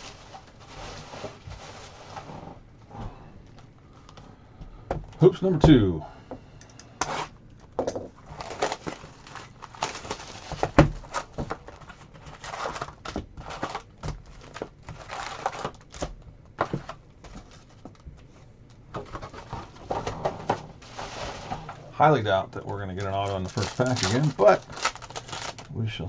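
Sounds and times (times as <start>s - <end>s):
foil packs crinkling and rustling: 0.0s - 2.3s, 8.2s - 20.1s, 20.7s - 26.0s.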